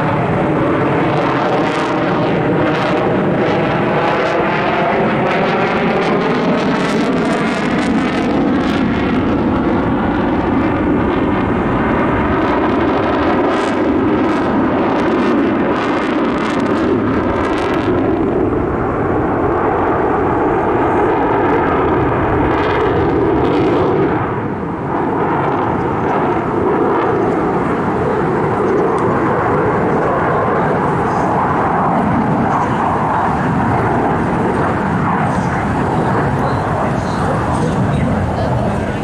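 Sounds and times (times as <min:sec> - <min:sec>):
aircraft engine flying past: 0:00.0 - 0:39.0.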